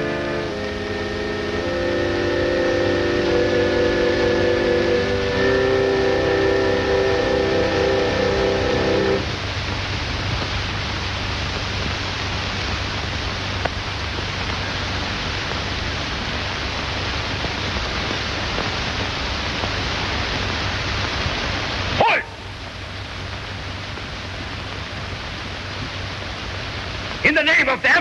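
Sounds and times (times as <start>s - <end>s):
low hum: 0.0s - 20.5s
film soundtrack hiss: 0.0s - 28.0s.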